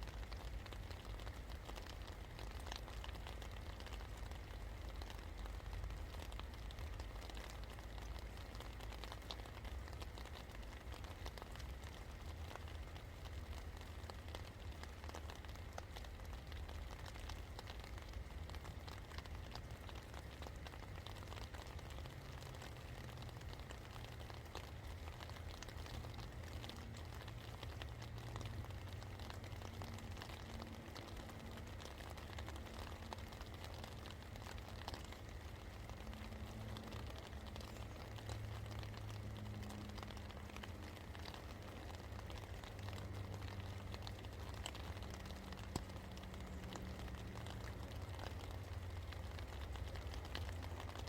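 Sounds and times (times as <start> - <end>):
rain drops hitting: 0.0 - 51.0.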